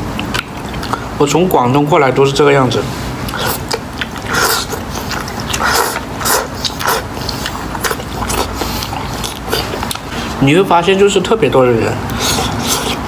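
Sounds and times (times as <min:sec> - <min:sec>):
person chewing noodles: 0:00.0 - 0:01.2, 0:03.1 - 0:10.4, 0:12.1 - 0:13.0.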